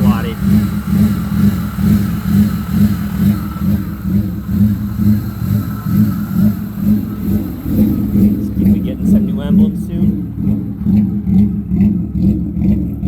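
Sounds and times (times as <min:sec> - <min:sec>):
car engine idling unevenly: 0:00.0 - 0:13.0.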